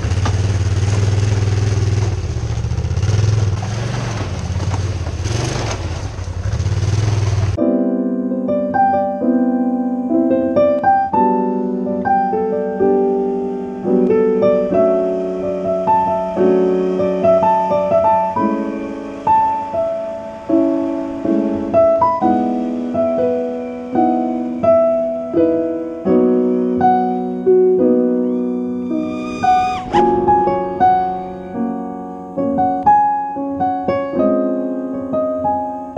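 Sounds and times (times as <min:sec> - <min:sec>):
piano music: 0:07.6 - 0:35.9.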